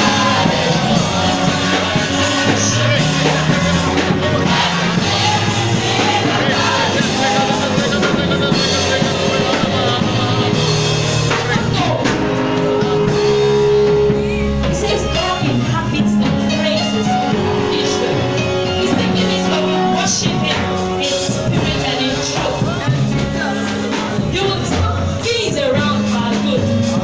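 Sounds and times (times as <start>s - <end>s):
person singing: 0.0s - 14.4s
drums: 0.0s - 27.0s
guitar: 0.0s - 27.0s.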